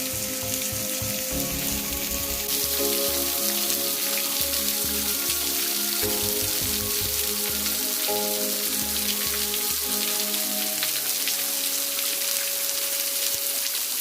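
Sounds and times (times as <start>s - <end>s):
waterfall rushing: 0.0s - 14.0s
music with held chords and bass: 0.1s - 2.5s.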